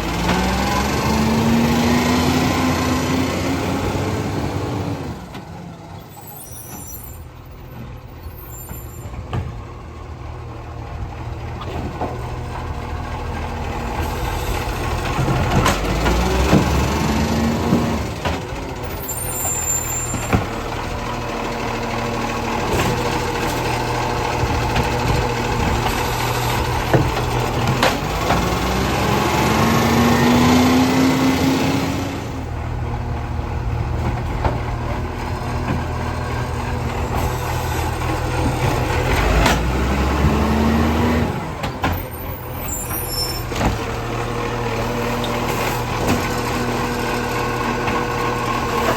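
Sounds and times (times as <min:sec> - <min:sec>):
garbage truck engine running: 0:00.0 - 0:48.9
sharp knocks and clanks: 0:24.4 - 0:28.8.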